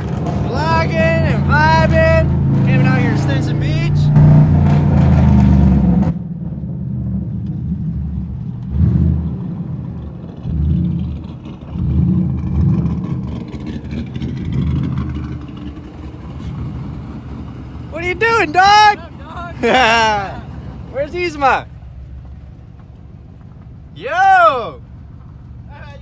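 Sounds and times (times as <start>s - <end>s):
car engine revving: 0.0s - 6.2s, 8.6s - 21.7s.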